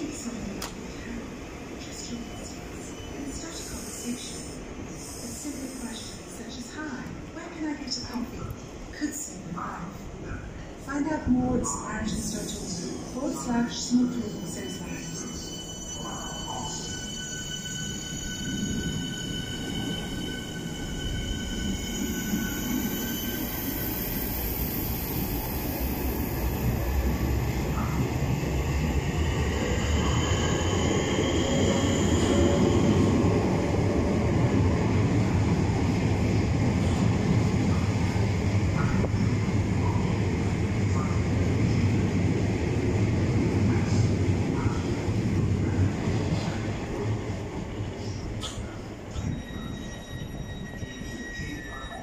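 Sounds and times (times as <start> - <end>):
high ringing squeal: 13.9 - 26.4, 49.1 - 52.0.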